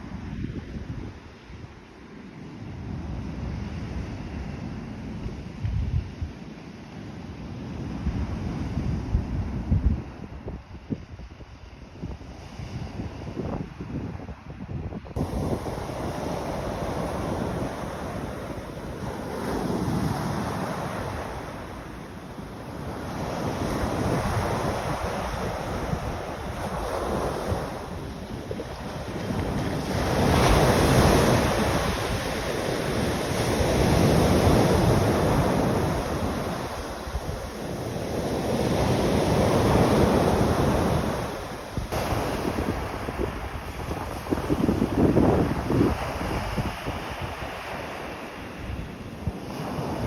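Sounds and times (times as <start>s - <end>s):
wind rumbling on microphone: 0.0s - 50.0s
sea waves washing in: 15.2s - 50.0s.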